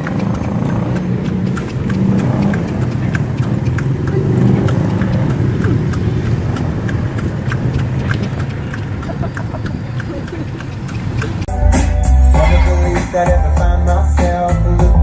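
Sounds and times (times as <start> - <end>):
horse hooves clip-clopping on road: 0.0 - 11.5
traffic engine rumble: 0.0 - 15.0.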